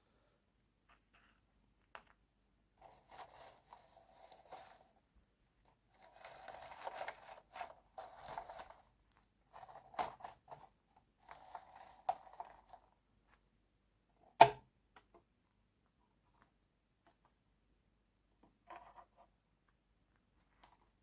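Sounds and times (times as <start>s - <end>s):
plastic packaging rustling: 5.9s - 8.9s.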